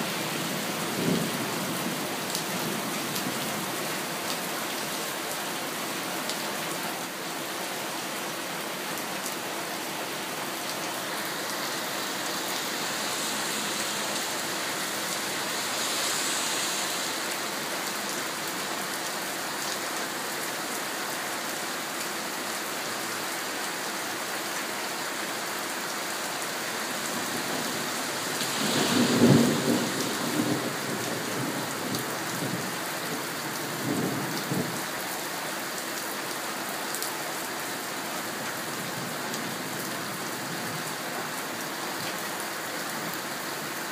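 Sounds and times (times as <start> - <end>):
heavy rain falling: 0.0 - 43.9
thunder clap rumbling: 28.6 - 31.6.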